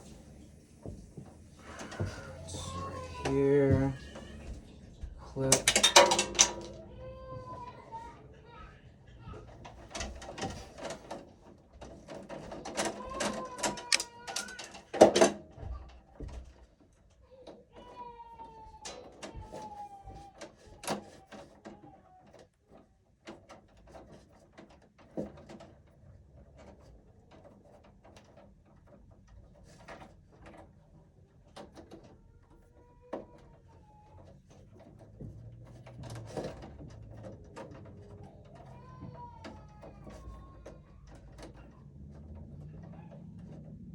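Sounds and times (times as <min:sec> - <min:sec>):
tools clicking on wires: 0:05.4 - 0:06.9, 0:09.6 - 0:15.4.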